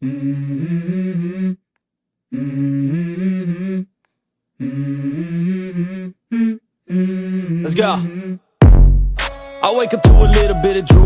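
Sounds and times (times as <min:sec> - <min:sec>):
person humming: 0:00.0 - 0:01.6, 0:02.3 - 0:03.9, 0:04.6 - 0:08.4, 0:10.0 - 0:11.0.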